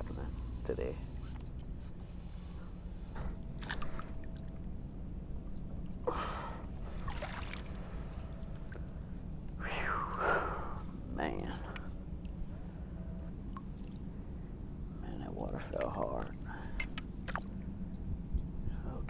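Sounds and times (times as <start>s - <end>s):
low rumble: 0.0s - 19.0s
water splashing: 3.2s - 4.5s, 6.1s - 8.8s
breathy noises: 6.0s - 8.4s, 9.6s - 13.2s.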